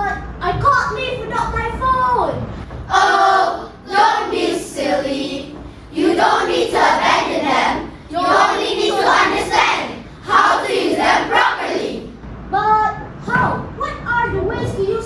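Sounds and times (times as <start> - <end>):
children's voices in unison: 2.9 - 12.2.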